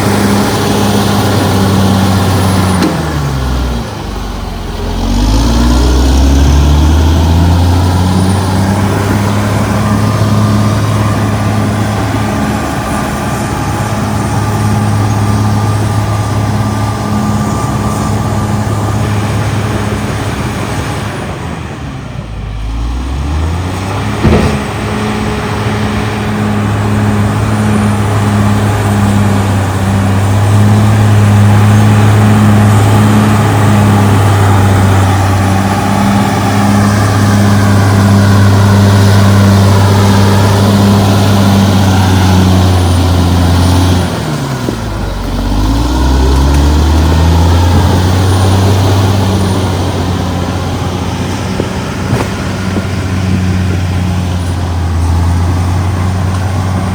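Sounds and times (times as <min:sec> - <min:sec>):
bulldozer diesel engine running: 0:00.0 - 0:56.9
sharp knock: 0:24.2 - 0:24.7.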